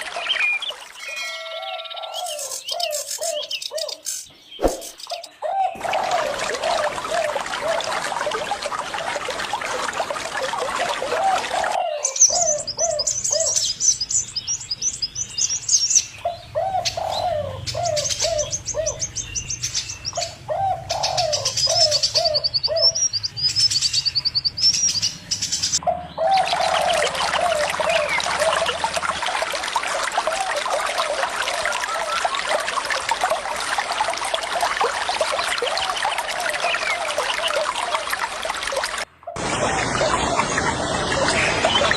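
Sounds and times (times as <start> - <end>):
running water: 0.0 - 3.2, 4.4 - 22.4, 26.2 - 41.9
small birds chirping: 0.0 - 7.0, 12.0 - 28.8
doves cooing: 4.7 - 13.6, 16.2 - 19.1, 20.2 - 23.0, 25.9 - 32.9.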